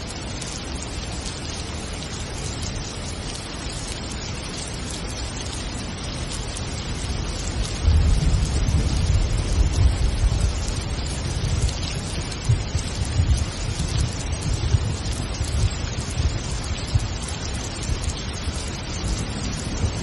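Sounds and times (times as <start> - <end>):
steady rain falling: 0.0 - 20.0
low rumble of thunder: 6.8 - 20.0.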